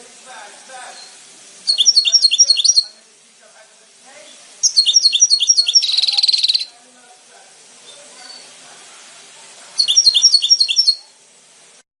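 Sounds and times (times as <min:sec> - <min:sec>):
goldfinch singing: 0:00.9 - 0:03.0, 0:04.6 - 0:06.8, 0:09.8 - 0:11.2.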